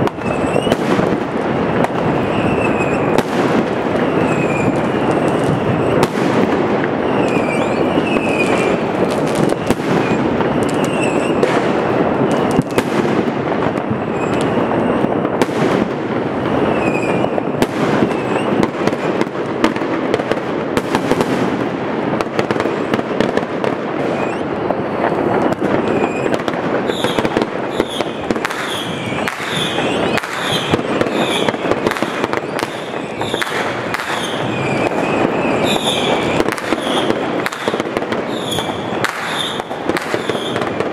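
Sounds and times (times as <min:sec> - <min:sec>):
fireworks banging and crackling: 0:00.0 - 0:40.9
fireworks whistling: 0:00.0 - 0:40.9.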